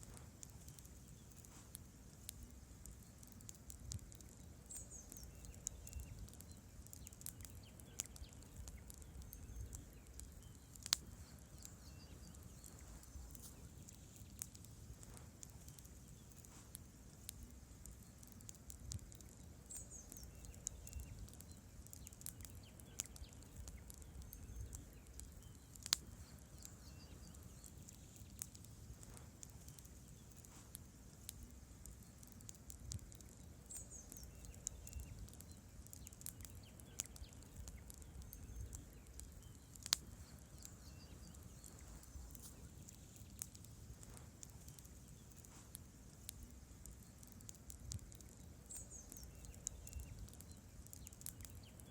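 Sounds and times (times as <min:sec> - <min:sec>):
campfire logs crackling and popping: 0:00.0 - 0:51.9
low rumble of flames: 0:00.0 - 0:51.9.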